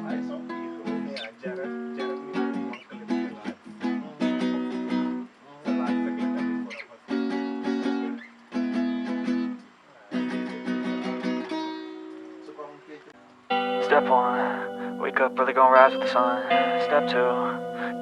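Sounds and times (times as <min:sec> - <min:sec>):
acoustic strings strummed: 0:13.5 - 0:18.0.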